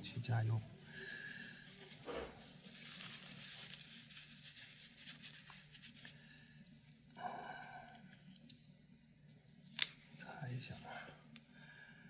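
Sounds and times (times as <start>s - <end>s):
hands rustling and rubbing: 0.6s - 6.2s.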